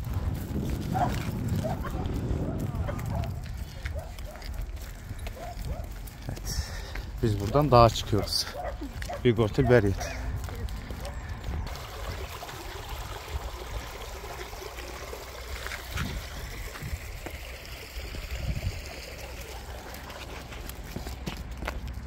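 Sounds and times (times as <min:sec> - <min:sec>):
stream trickling: 0:11.6 - 0:21.0.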